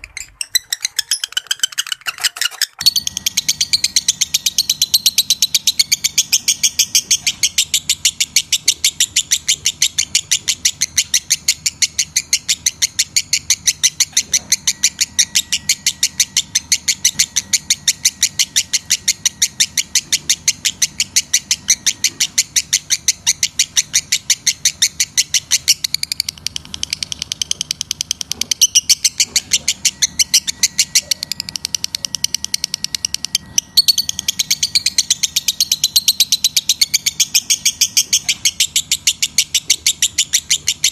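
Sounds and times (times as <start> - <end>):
lovebird shrill chirps: 0.0 - 40.9.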